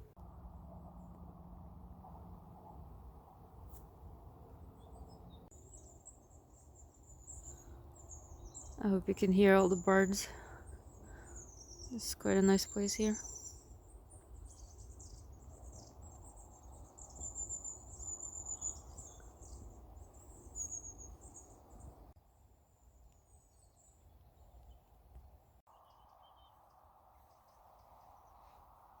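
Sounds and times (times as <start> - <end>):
small birds chirping and trilling: 4.8 - 22.1.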